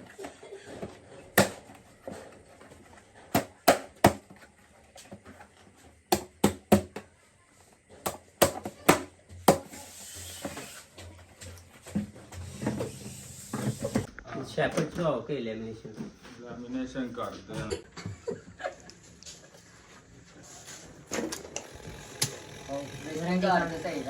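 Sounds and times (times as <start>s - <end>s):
hard objects knocking and clicking: 21.2s - 24.0s.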